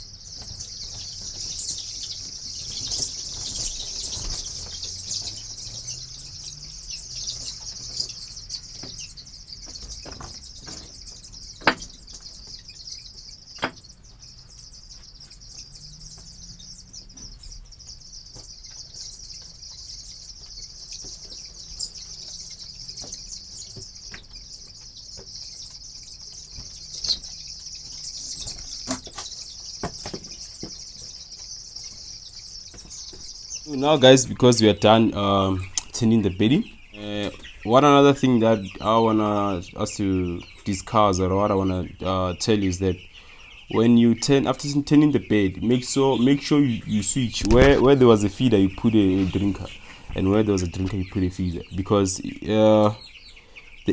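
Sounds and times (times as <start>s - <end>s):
chicks peeping: 0.0s - 53.9s
sharp knocks: 11.6s - 12.0s.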